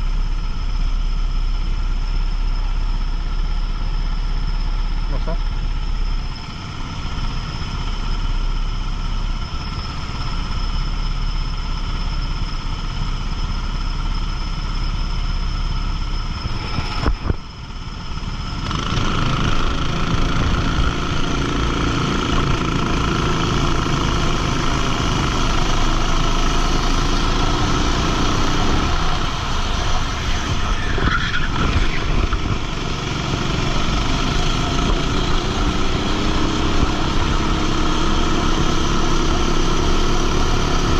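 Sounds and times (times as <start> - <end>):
go-kart engine running hard: 0.0 - 40.9
wind rush: 16.3 - 17.7, 28.6 - 36.0.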